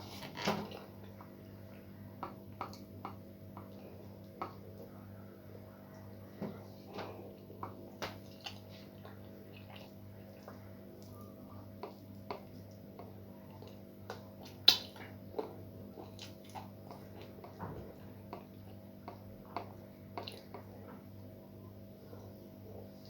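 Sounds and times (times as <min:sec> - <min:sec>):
steady low hum: 0:00.0 - 0:23.0
wet chewing and mouth smacks: 0:11.8 - 0:17.6.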